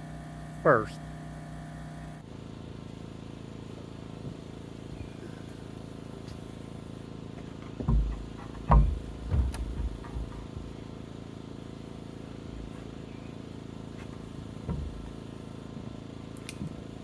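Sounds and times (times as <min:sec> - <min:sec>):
steady low hum: 0:00.0 - 0:17.0
dull thumps and knocks: 0:07.4 - 0:10.9, 0:14.0 - 0:15.2.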